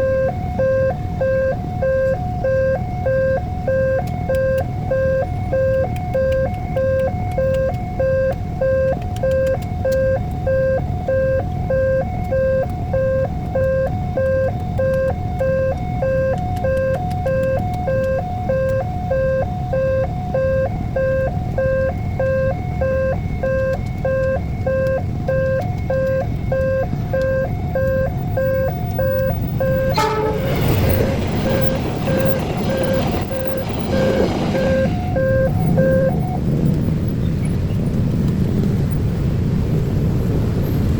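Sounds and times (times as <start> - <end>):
level crossing alarm two-note tone: 0.0 - 36.4
low rumble of waiting traffic: 0.0 - 40.9
train passing rushing rumble: 28.1 - 40.9.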